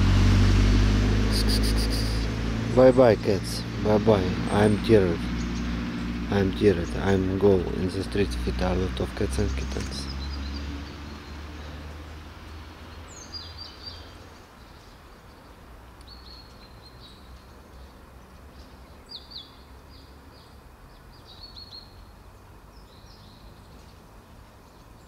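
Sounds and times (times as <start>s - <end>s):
low outdoor rumble: 0.0s - 15.9s
small birds chirping: 1.3s - 25.0s.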